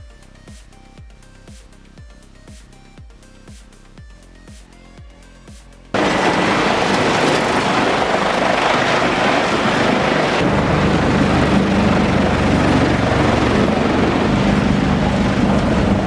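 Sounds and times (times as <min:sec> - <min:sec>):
low engine drone: 0:05.9 - 0:16.0
wood chipper chewing timber: 0:06.0 - 0:16.0.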